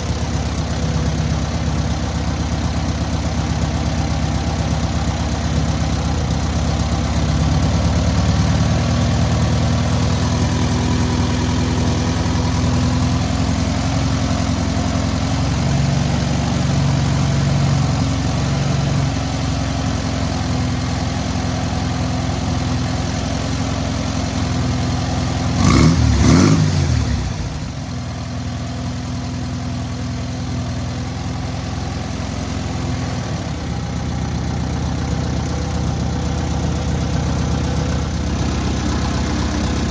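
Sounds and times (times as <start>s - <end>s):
car engine running: 0.0s - 39.9s
engine revving: 25.4s - 27.7s.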